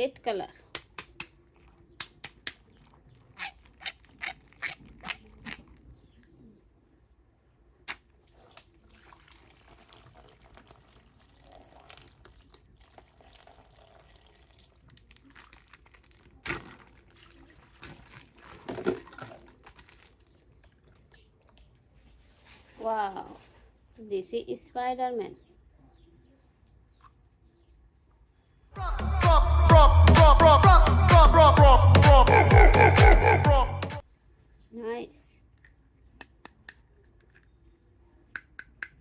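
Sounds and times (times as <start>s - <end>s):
water dripping and trickling: 8.2s - 15.8s.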